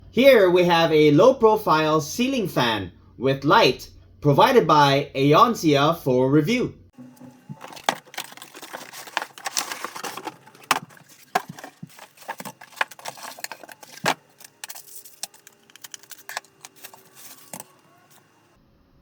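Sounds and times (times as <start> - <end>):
small objects clicking and rustling: 7.1 - 18.4.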